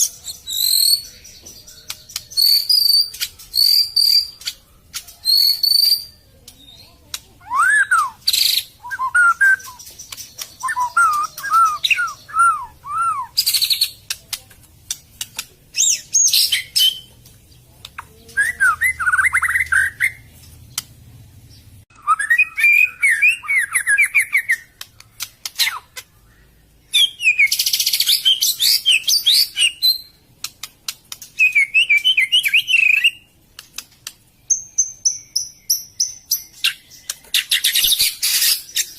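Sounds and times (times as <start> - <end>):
bird singing whistled notes: 0.0 - 6.8, 7.4 - 14.0, 21.9 - 24.7, 25.6 - 30.2, 31.4 - 33.3, 34.4 - 38.9
bird rapid high notes and clicks: 0.0 - 18.1, 27.5 - 38.9.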